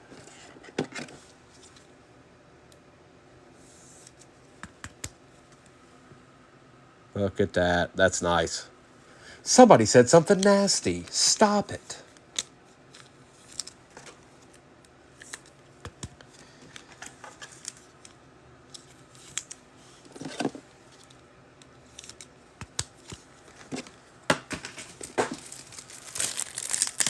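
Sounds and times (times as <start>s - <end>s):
wrappers rustling: 25.0s - 27.0s.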